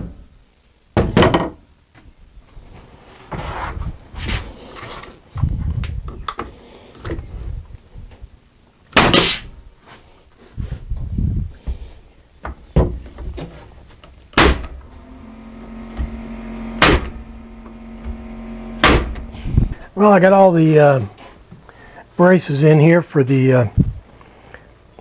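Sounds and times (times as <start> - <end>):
wood rubbing: 11.6 - 20.5
low steady hum: 12.2 - 22.0
wooden braces knocked into place: 14.3 - 14.8.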